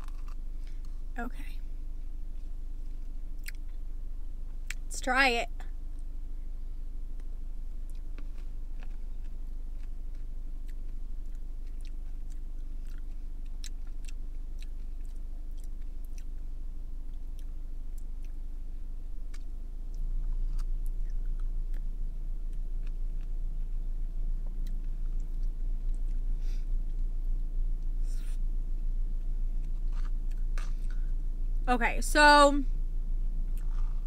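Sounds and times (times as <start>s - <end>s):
person chewing: 0.0s - 0.9s, 3.4s - 3.8s, 7.2s - 16.4s, 19.2s - 23.4s, 29.6s - 31.1s, 33.5s - 34.0s
steady low hum: 0.0s - 34.0s.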